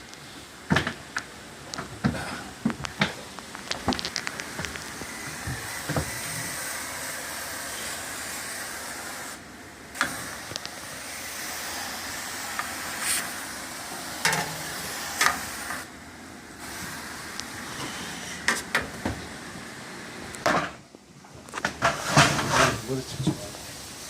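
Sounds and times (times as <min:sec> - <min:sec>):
pressurized spray hissing: 0:04.4 - 0:16.0, 0:16.6 - 0:18.5, 0:22.8 - 0:24.0.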